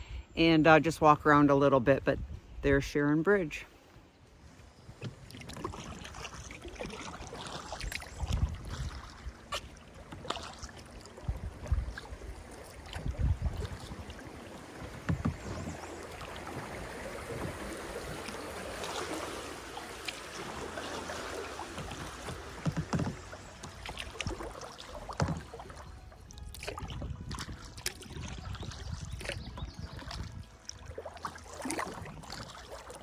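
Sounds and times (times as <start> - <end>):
paddle splashing water: 3.5 - 33.0
dull thumps: 14.8 - 15.8, 21.7 - 23.8.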